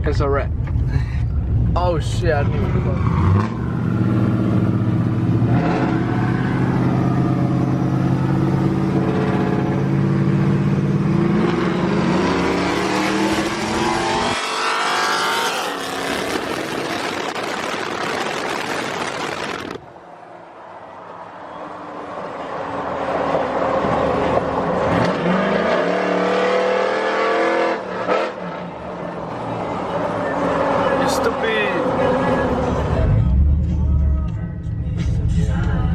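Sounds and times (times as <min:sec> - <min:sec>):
truck engine accelerating: 0:01.4 - 0:20.0.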